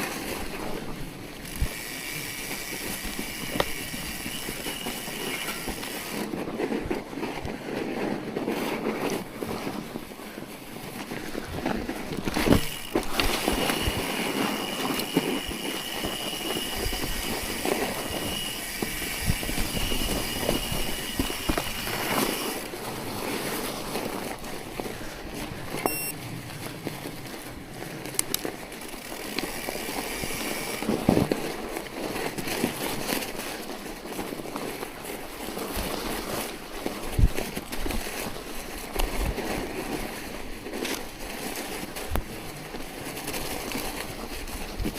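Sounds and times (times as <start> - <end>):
wind and tyre noise: 0.0 - 44.9.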